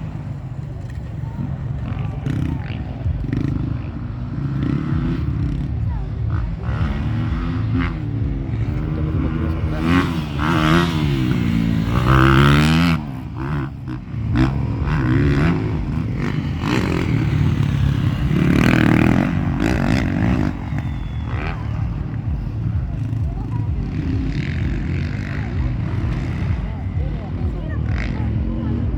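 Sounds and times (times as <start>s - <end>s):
motocross bike engines revving: 0.0s - 28.9s.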